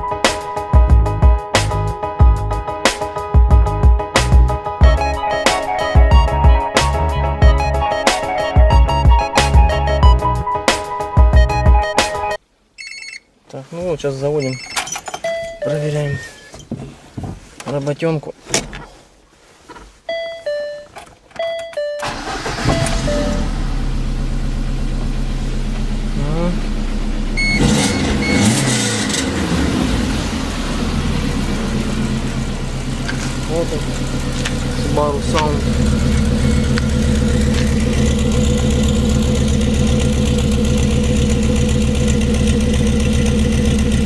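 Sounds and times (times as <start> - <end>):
car engine starting and idling: 21.0 - 44.0
electronic two-note beeps: 27.4 - 28.6.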